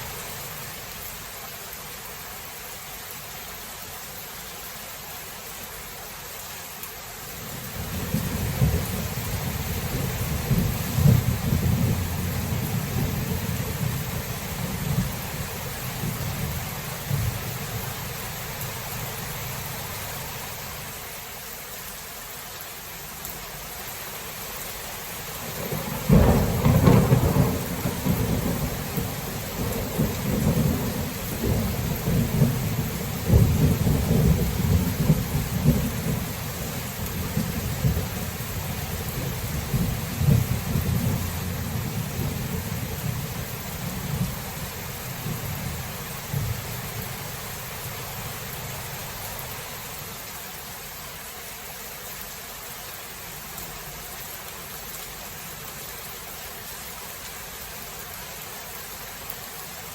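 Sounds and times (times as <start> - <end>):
steady rain: 0.0 - 59.9
loud thunderclap: 7.8 - 14.0, 25.6 - 36.2, 39.2 - 43.2
rolling thunder: 7.8 - 17.8, 25.6 - 47.1.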